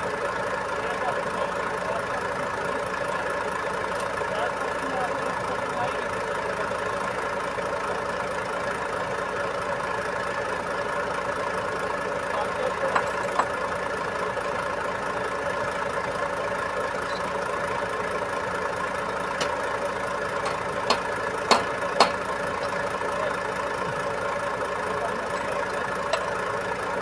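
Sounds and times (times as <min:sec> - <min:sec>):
diesel truck engine running: 0:00.0 - 0:27.0
sharp knocks: 0:20.4 - 0:22.3.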